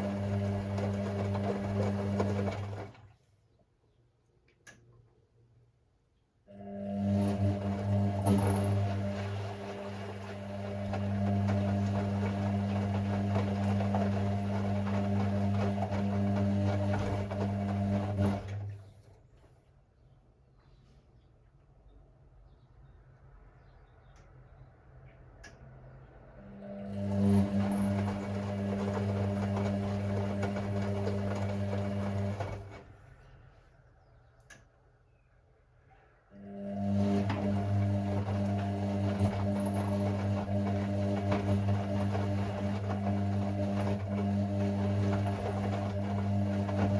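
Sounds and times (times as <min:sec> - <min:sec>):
washing machine humming and rattling: 0:00.0 - 0:03.2, 0:06.5 - 0:19.3, 0:26.3 - 0:33.3, 0:36.4 - 0:46.9.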